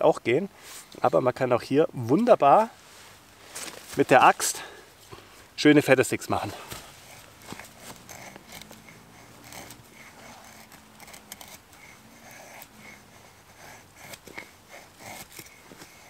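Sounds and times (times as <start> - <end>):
axe scraping wood: 6.4 - 16.0.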